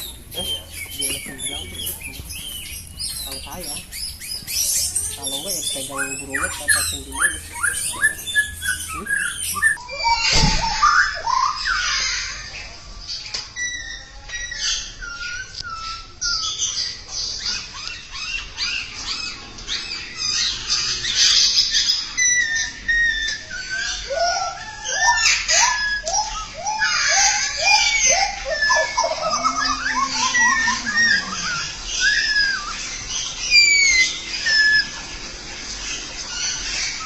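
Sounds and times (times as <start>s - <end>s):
songbird singing: 0.0s - 10.0s, 20.5s - 35.0s.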